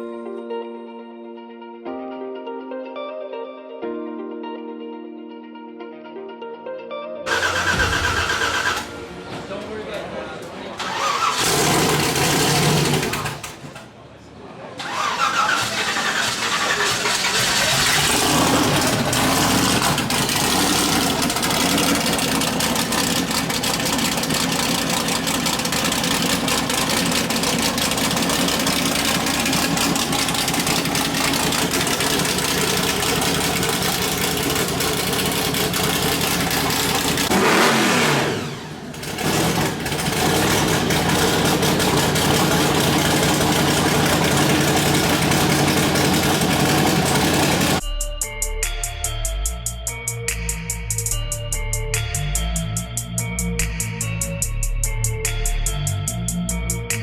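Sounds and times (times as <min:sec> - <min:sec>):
car engine running: 0:07.3 - 0:10.0, 0:10.8 - 0:13.9, 0:14.8 - 0:47.8.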